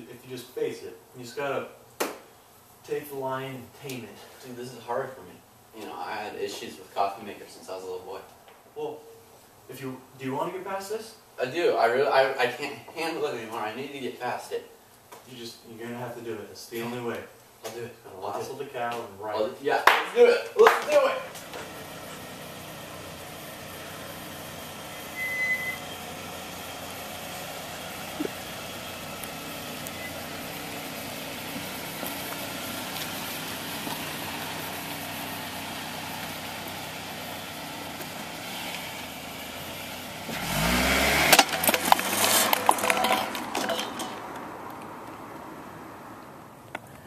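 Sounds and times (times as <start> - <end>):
sharp cracks and knocks: 2.0 - 2.3, 41.3 - 44.9
vehicle engine revving: 21.3 - 46.3.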